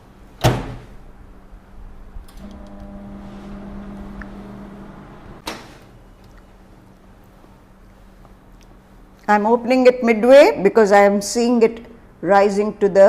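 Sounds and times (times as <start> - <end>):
microwave oven humming: 1.0 - 8.0.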